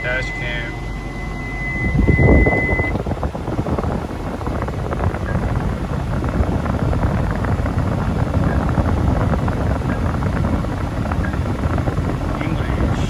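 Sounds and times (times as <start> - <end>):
high electronic beep: 0.0 - 3.0
air conditioning blowing: 0.0 - 13.0
truck running: 0.0 - 13.0.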